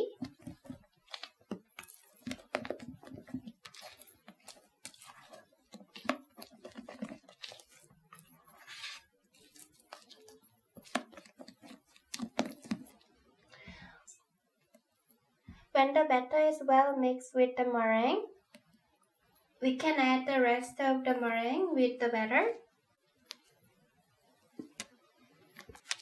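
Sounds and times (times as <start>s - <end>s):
wet batter scraping swishes: 0.0s - 13.2s.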